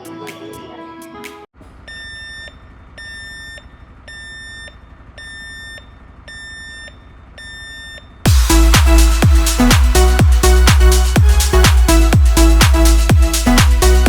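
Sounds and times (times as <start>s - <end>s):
electronic alarm beeping: 1.8s - 8.3s.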